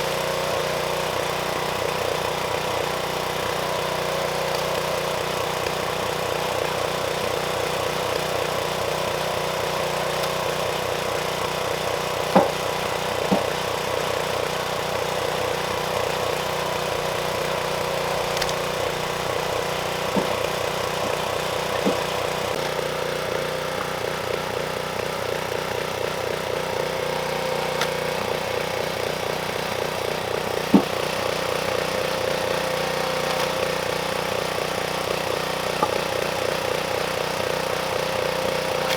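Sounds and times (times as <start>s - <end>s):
small gasoline engine running: 0.0s - 38.9s
wood splitting cracks: 3.9s - 6.1s, 9.6s - 13.8s, 17.2s - 22.8s, 27.0s - 38.9s.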